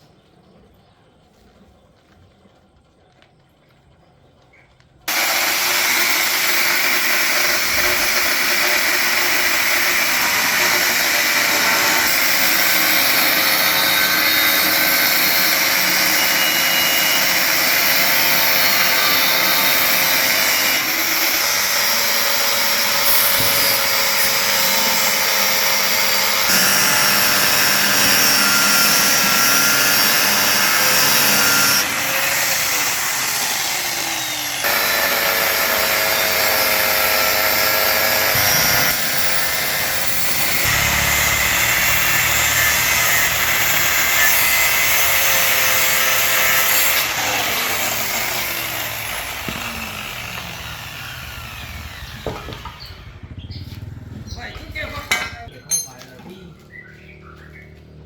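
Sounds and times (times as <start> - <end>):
power tool whining: 5.1 - 54.2.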